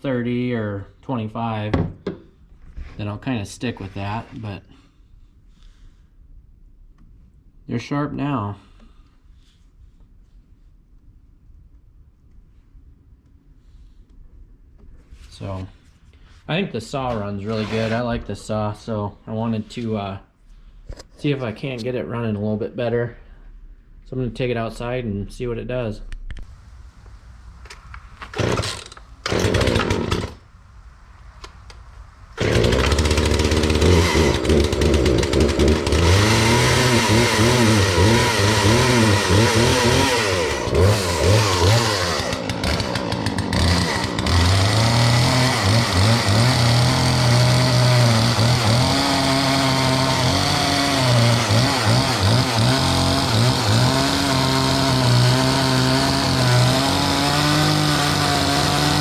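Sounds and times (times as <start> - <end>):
chainsaw starting and idling: 17.1 - 18.1, 28.2 - 30.4, 32.4 - 59.0.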